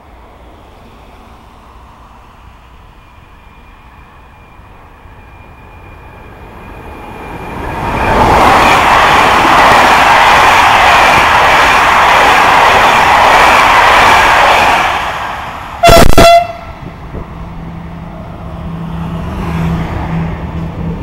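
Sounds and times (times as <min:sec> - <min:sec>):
train wheel and rail rushing: 0:00.0 - 0:21.0.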